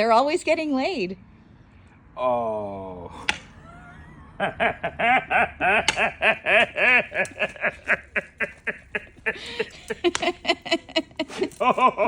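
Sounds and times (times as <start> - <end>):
person laughing hard: 3.6 - 12.0.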